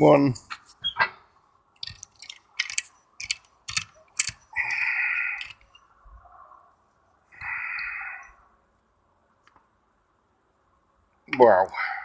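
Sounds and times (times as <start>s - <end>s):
metal and plastic grinding: 1.8s - 5.8s.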